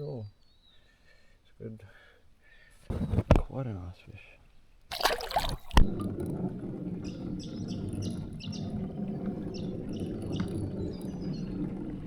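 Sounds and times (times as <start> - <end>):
bird chirping: 9.5 - 11.6.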